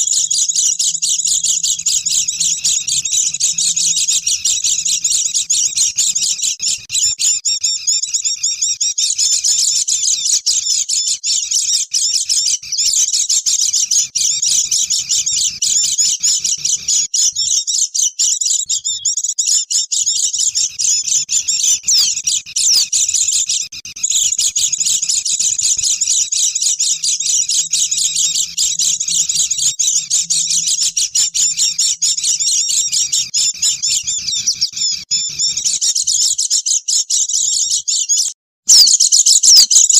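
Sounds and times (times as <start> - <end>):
flock of birds chattering: 0.0 - 7.2, 19.4 - 36.3.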